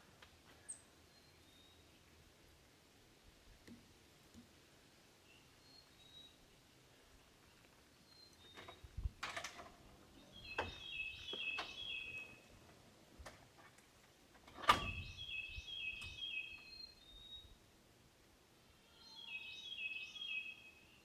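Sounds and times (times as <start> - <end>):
songbird singing: 0.5 - 2.4, 3.7 - 13.3, 14.6 - 17.7, 18.8 - 21.0.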